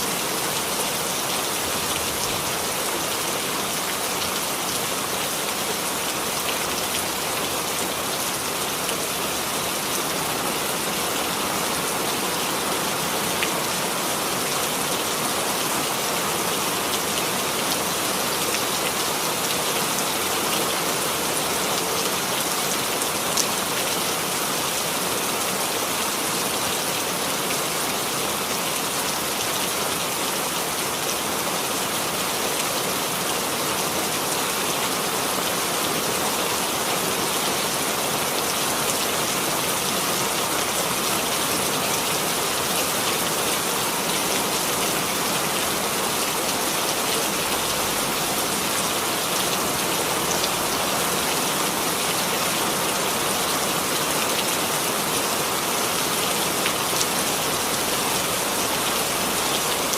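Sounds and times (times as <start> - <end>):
rain pattering: 36.5 - 59.9.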